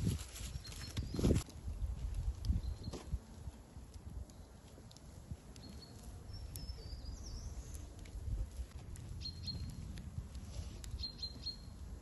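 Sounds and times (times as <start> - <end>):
songbirds chirping: 0.4 - 1.4, 2.4 - 12.0
charcoal fire crackling: 7.6 - 11.0.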